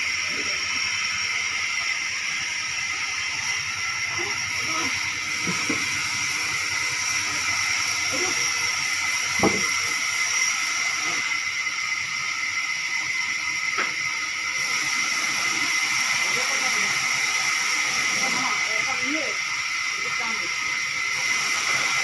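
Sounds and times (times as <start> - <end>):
sawmill machinery whining: 0.0 - 22.0
knock: 9.4 - 9.7.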